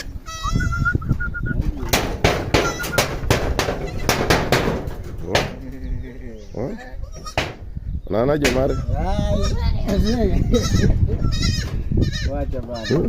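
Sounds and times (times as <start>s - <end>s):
goat kid bleating: 0.0s - 1.0s, 2.6s - 3.0s, 3.8s - 4.2s, 6.4s - 7.5s, 8.6s - 13.0s
bird whistling call: 0.5s - 1.6s.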